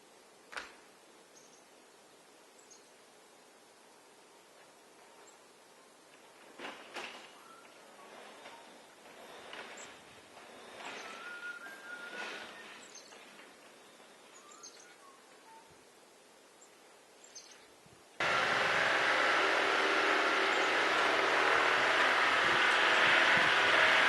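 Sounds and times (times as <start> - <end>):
faint bird chirps: 7.3 - 8.8, 13.8 - 15.8
tractor engine running: 18.2 - 24.0.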